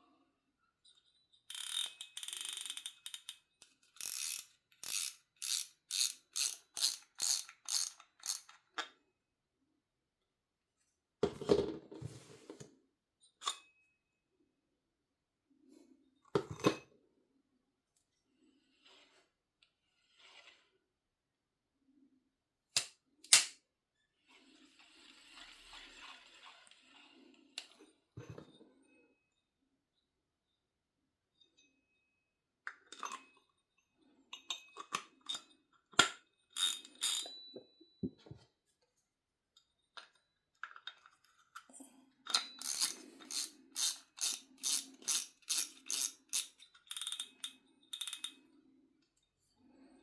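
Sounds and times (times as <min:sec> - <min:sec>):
fishing reel ratcheting: 0:01.5 - 0:08.5, 0:42.4 - 0:48.3.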